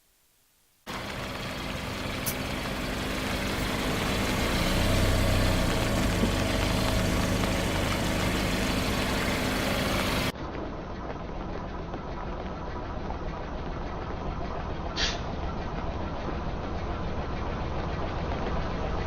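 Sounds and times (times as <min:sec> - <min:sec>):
car engine running: 0:00.9 - 0:19.0.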